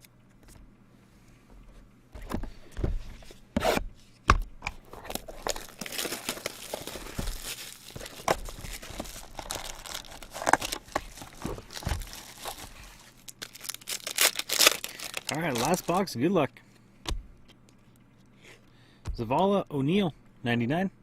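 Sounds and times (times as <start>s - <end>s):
plastic packaging tearing and crinkling: 4.8s - 16.1s.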